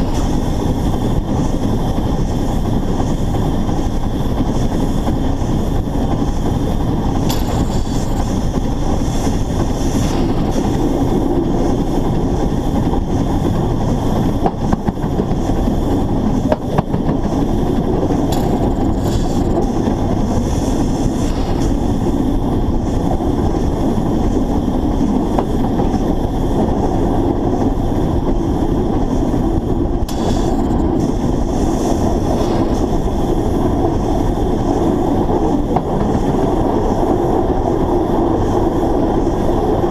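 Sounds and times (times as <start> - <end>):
steam locomotive running gear rumble: 0.0 - 39.9
wheels clicking over rail joints: 16.3 - 20.4.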